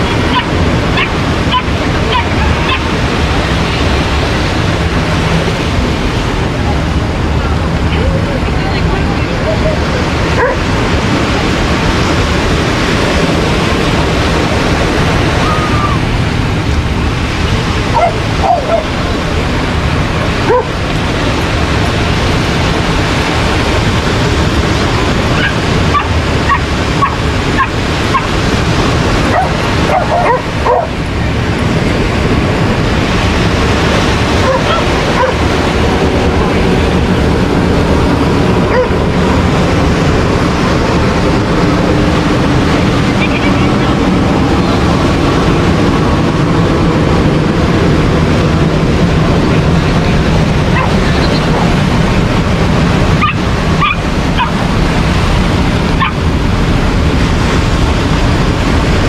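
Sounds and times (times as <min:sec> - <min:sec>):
dogs barking and yipping: 0:00.0 - 0:03.0, 0:10.3 - 0:10.7, 0:17.8 - 0:19.0, 0:20.4 - 0:20.8, 0:25.3 - 0:28.4, 0:29.2 - 0:31.0, 0:34.2 - 0:35.6, 0:38.6 - 0:39.1, 0:50.7 - 0:51.6, 0:53.1 - 0:54.6, 0:55.9 - 0:56.2
surf rushing: 0:00.0 - 0:59.0
wind: 0:00.0 - 0:59.0.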